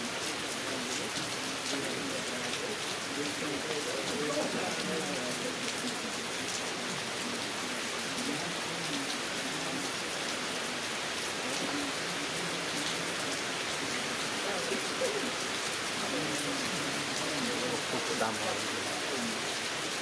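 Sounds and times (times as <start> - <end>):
faint voices talking: 0.0 - 20.0
heavy rain falling: 0.0 - 20.0.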